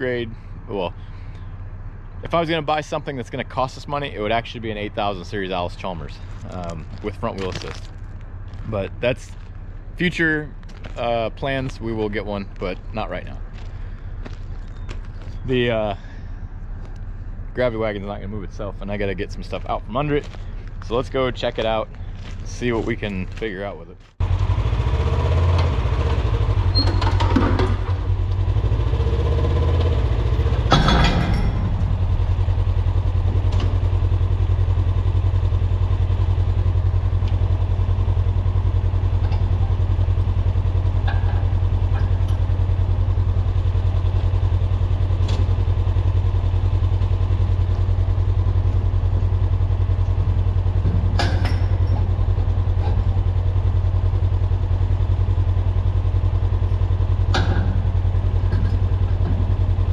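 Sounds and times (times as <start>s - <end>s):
farm machine engine idling: 0.0s - 59.9s
metal clanks: 29.6s - 35.4s, 37.0s - 46.6s, 48.1s - 59.9s.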